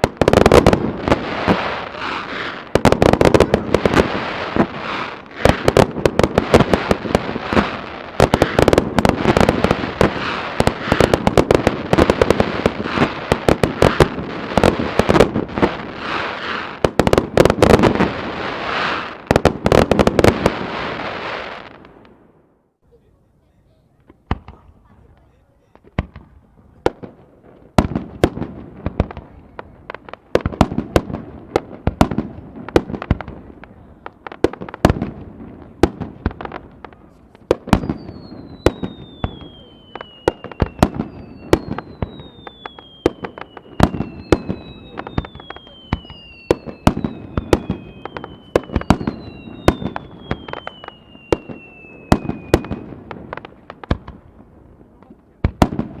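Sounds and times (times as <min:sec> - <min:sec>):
fireworks bangs and crackles: 0:00.0 - 0:22.5, 0:23.9 - 0:56.0
falling firework whistles: 0:37.7 - 0:53.0.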